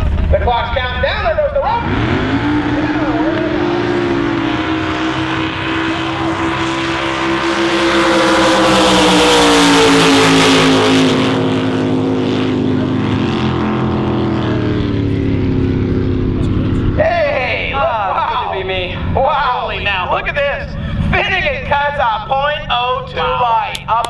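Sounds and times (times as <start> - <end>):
jet boat engines at full throttle: 0.0 - 24.0.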